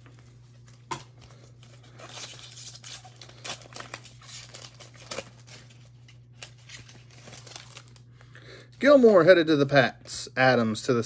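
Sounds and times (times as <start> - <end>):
wrapper crinkling: 0.0 - 8.3
steady low hum: 0.0 - 11.0
foil pack tearing open: 1.6 - 8.0.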